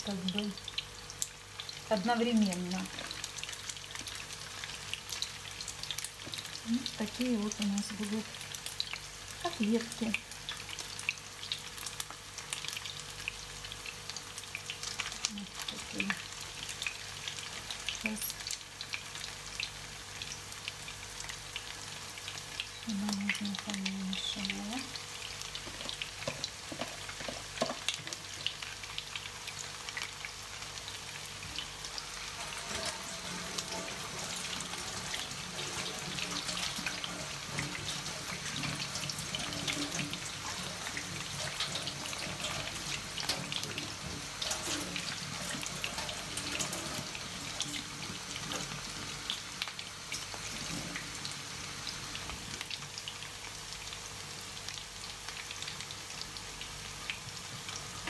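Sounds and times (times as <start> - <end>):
meat sizzling in hot oil: 0.0 - 58.0
tap water running into sink: 32.5 - 48.8.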